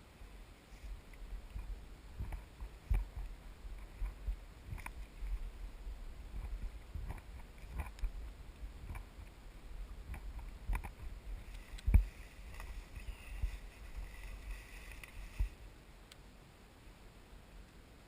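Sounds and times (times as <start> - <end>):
footsteps in undergrowth: 10.0 - 15.6.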